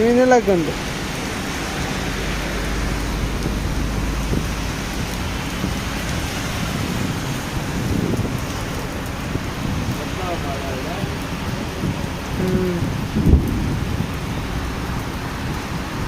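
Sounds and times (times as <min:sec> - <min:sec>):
heavy rain falling: 0:00.0 - 0:16.0
low rumble: 0:01.6 - 0:10.0.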